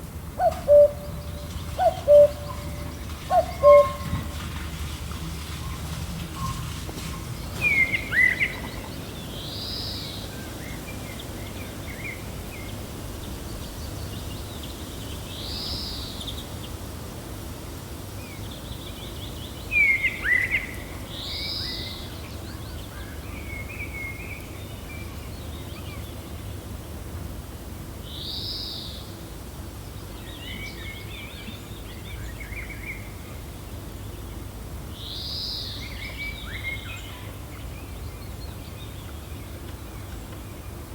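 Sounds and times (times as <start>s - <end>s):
gentle steady wind: 0.0s - 40.9s
birds chirping: 0.3s - 4.8s.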